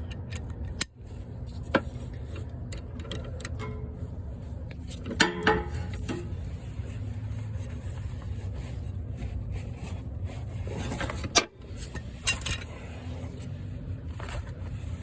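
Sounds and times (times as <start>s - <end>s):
steady low hum: 0.0s - 15.0s
metal hand tools clinking: 5.2s - 6.4s.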